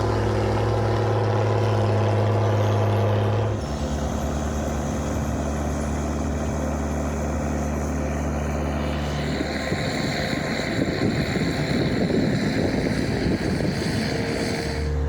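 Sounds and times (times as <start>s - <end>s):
large engine humming: 0.0s - 15.0s
wind noise: 9.0s - 15.0s.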